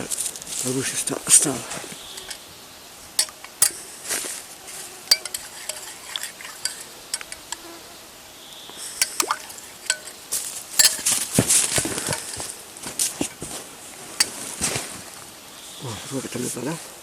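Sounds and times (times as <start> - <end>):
objects clicking and clinking: 3.2 - 3.8, 5.1 - 7.6, 9.0 - 10.2, 10.8 - 12.5
rustling: 3.2 - 7.7, 9.0 - 15.2.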